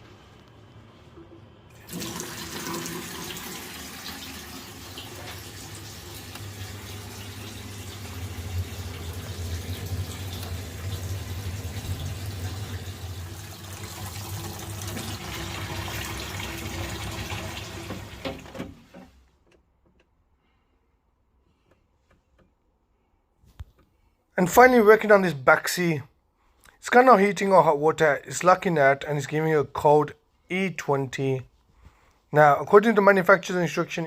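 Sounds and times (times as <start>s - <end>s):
water running from a tap: 1.8s - 18.5s.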